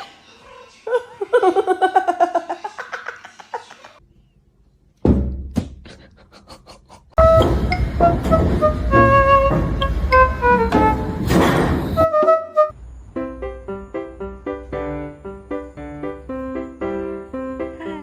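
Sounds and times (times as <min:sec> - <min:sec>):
thump: 0:05.0 - 0:05.7, 0:10.7 - 0:12.0
music: 0:07.2 - 0:11.3, 0:11.9 - 0:18.0.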